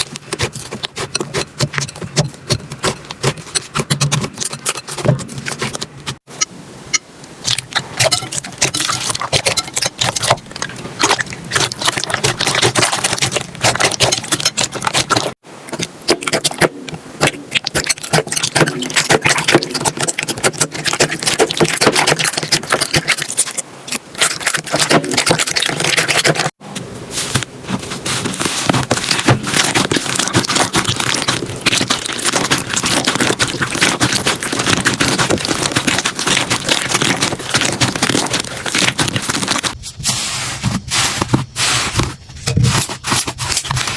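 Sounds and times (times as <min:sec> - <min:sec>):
slime squeezed and stretched: 0:07.5 - 0:15.3, 0:28.1 - 0:39.8
slime crackling and popping: 0:07.5 - 0:26.6, 0:28.2 - 0:39.8.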